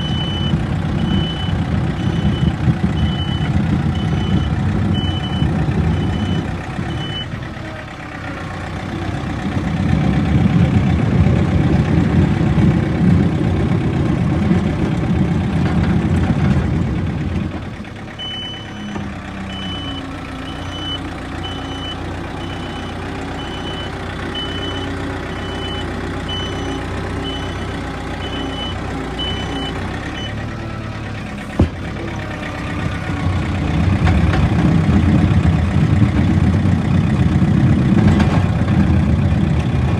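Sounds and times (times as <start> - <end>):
reversing alarm beeping: 0.0 - 7.4, 18.2 - 30.4
diesel engine working under load: 0.0 - 39.9.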